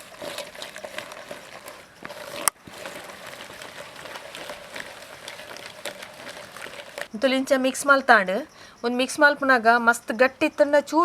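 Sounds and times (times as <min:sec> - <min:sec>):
spoon stirring in a bowl: 0:00.0 - 0:07.1.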